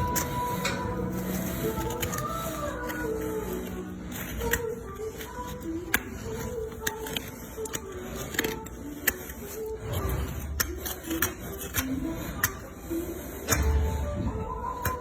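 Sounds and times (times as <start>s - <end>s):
farrier tools clicking and scraping: 0.0s - 15.0s.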